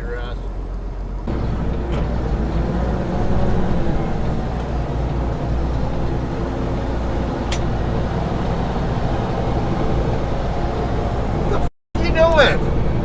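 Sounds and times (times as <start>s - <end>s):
truck engine and road drone: 0.0s - 13.0s
sharp click: 7.5s - 7.7s.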